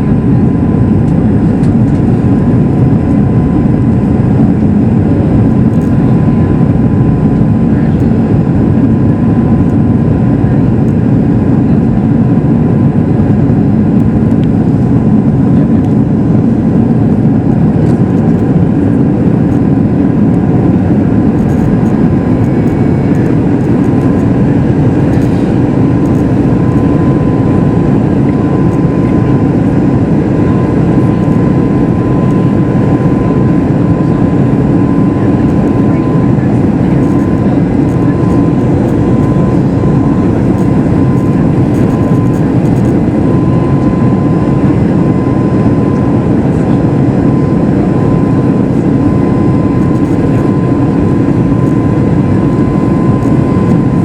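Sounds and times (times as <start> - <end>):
airplane cabin roar: 0.0 - 54.0.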